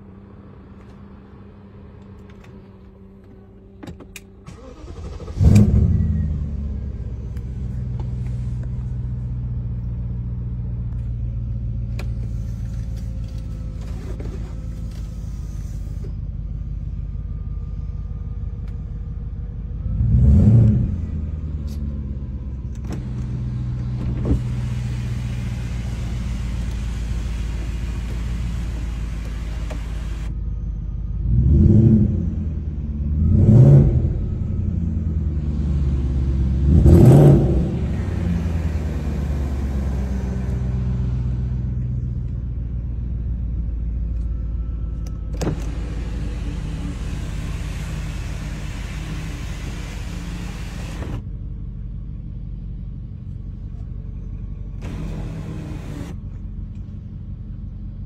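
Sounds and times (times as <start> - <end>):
car engine revving: 4.5 - 10.0, 19.7 - 30.3, 31.2 - 41.9, 45.2 - 51.2, 54.8 - 56.4.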